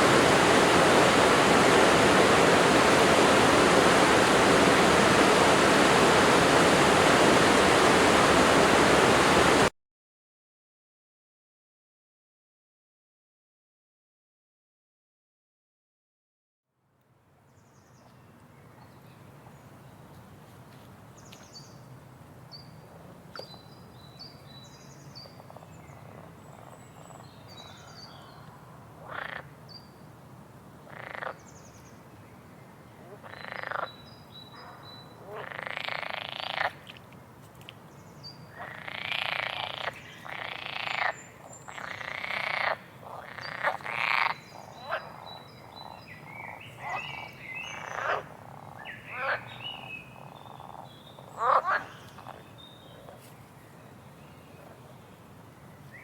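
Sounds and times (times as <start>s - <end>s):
frogs croaking: 29.0s - 29.6s, 30.9s - 31.6s, 33.0s - 36.9s, 38.5s - 53.2s.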